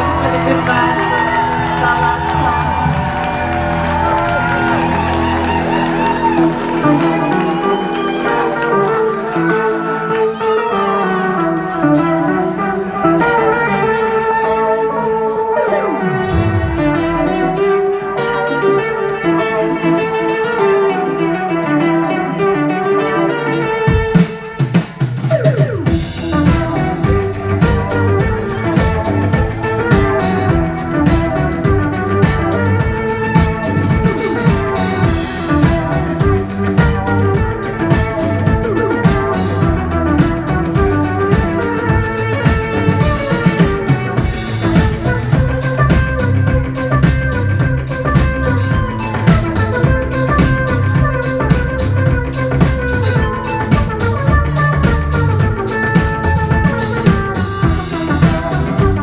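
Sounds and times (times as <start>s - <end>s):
drum kit: 0.0s - 14.5s, 15.4s - 59.0s
live band playing folk-rock: 0.0s - 59.0s
plucked guitar line: 0.0s - 59.0s.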